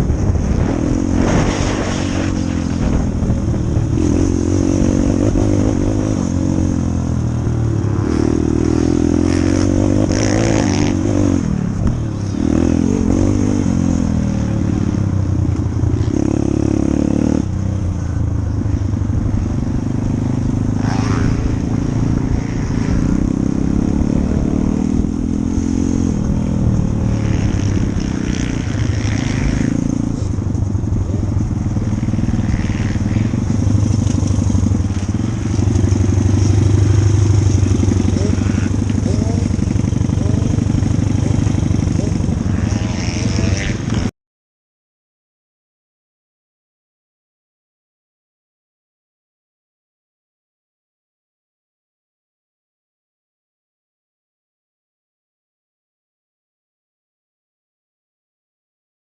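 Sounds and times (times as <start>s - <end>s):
motorcycle engine revving: 0.0s - 44.1s.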